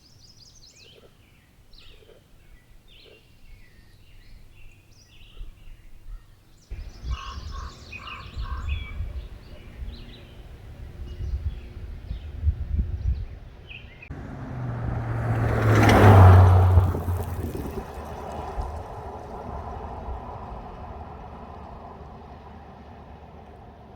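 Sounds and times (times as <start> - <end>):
songbirds singing: 0.0 - 18.7
passing vehicle hum: 6.7 - 23.9.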